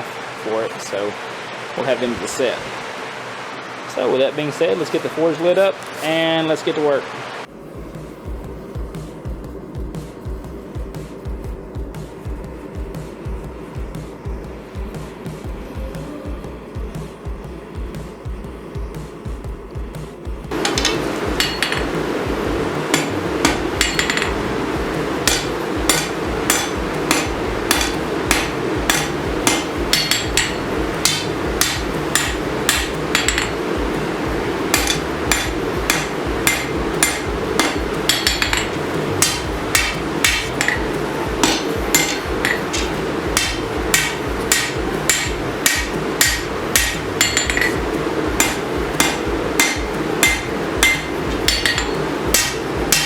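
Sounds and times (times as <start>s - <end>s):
steady rushing noise: 0.0s - 53.0s
hammer striking steel on anvil: 20.5s - 53.0s.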